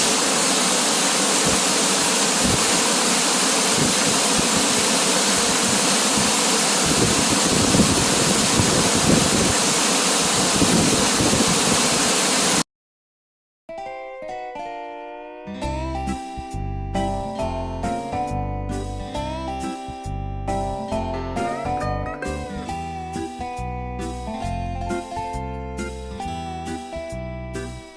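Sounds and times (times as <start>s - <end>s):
waterfall rushing: 0.0s - 12.6s.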